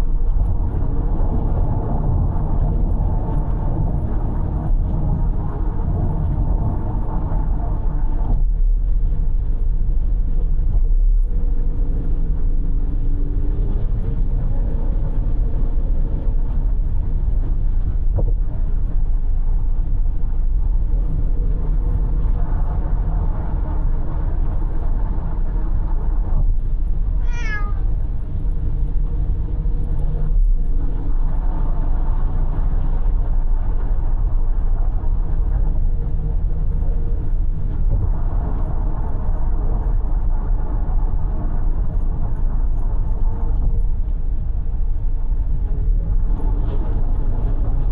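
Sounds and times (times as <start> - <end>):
car road and engine noise: 0.0 - 47.9
cat meowing: 27.2 - 27.9.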